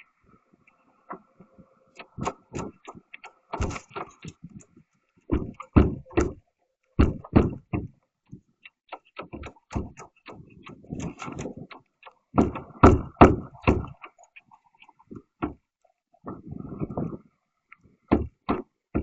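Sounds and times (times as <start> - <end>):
knocks and thumps: 2.0 - 4.5, 5.3 - 6.4, 7.0 - 8.0, 8.9 - 14.2, 14.9 - 15.6, 18.1 - 19.0.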